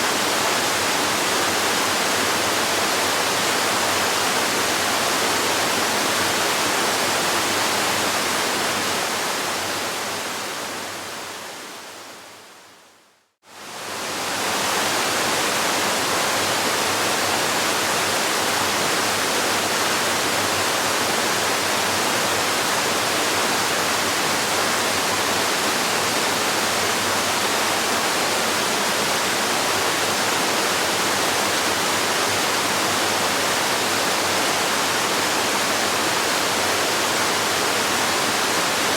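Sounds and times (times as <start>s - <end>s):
waterfall rushing: 13.7s - 38.9s.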